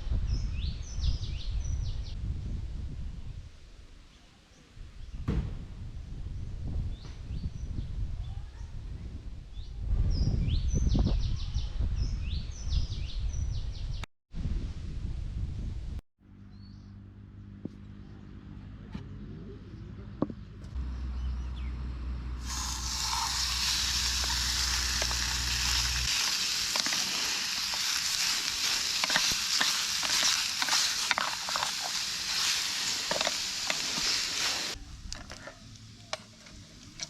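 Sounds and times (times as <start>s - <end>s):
food sizzling in a pan: 22.4s - 34.8s.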